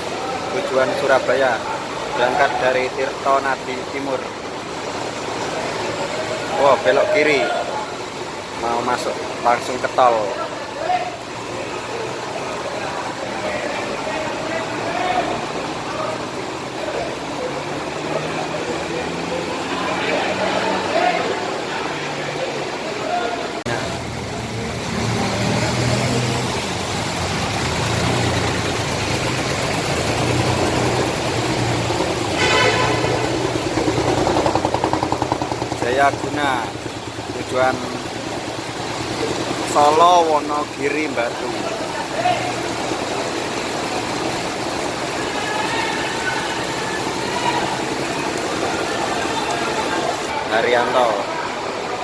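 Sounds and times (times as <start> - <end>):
bus engine humming: 11.2 - 52.0
bus engine running: 23.7 - 40.8.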